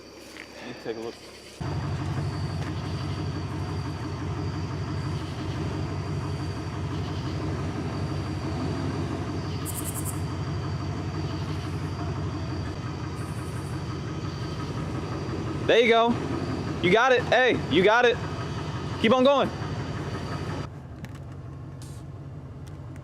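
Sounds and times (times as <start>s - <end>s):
vehicle engine idling: 0.0s - 23.0s
high-pitched rapid chirping: 9.5s - 10.3s.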